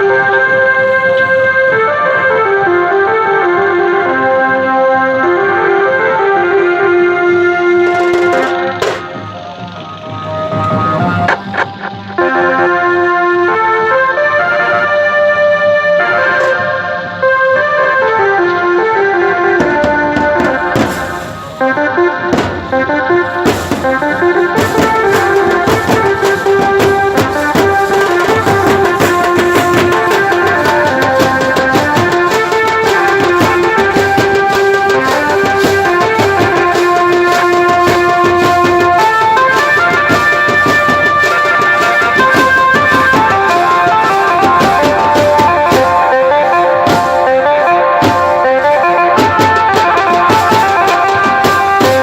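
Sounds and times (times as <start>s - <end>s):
melody with steady beat: 6.1s - 52.0s
hand-drum percussion: 6.5s - 13.2s, 18.4s - 52.0s.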